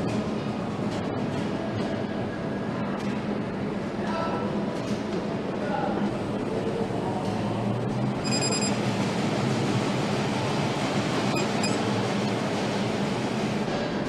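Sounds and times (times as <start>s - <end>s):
factory machinery hum: 0.0s - 14.0s
short electronic beep: 8.2s - 8.8s, 11.3s - 11.8s.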